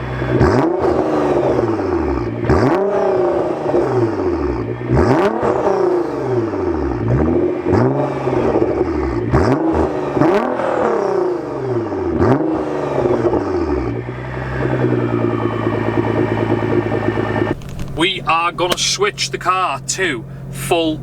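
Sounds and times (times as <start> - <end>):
car engine revving: 0.0 - 21.0
exhaust cracks: 14.6 - 21.0.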